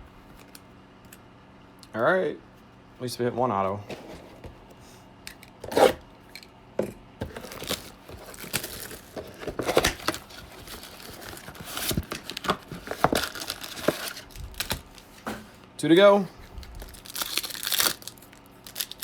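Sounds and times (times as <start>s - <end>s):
wrapper being torn and crinkled: 7.4s - 15.2s, 16.6s - 19.0s.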